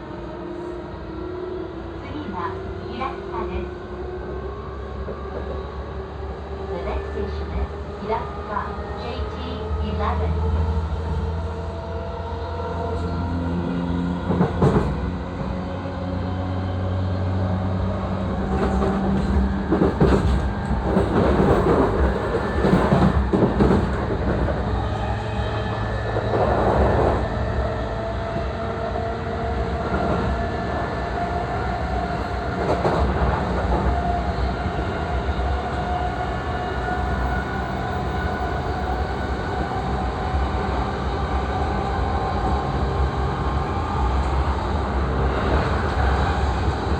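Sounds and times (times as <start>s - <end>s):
train motor and inverter hum: 1.8s - 46.9s
wheels rumbling on rails: 12.6s - 46.9s.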